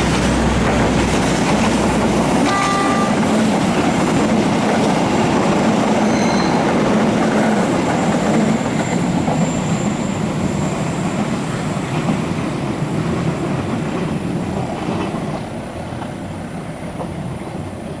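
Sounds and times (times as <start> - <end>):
train wheels rumbling on track: 0.0 - 18.0
faint high wheel squeal: 6.0 - 11.8.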